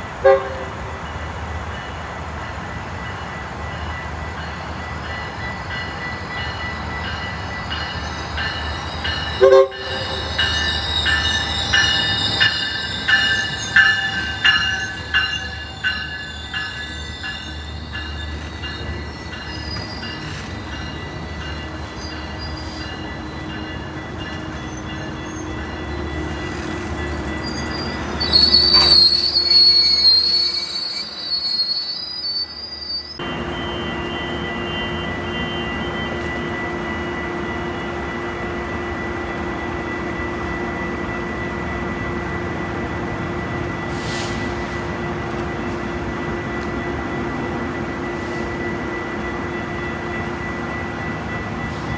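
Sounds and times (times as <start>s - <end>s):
train wheel squeal: 3.0s - 51.9s
train wheels clattering: 6.4s - 32.4s.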